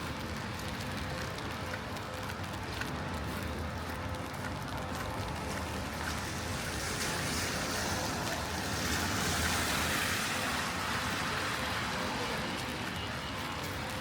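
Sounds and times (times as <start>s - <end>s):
tyres hissing on wet road: 5.3s - 14.0s.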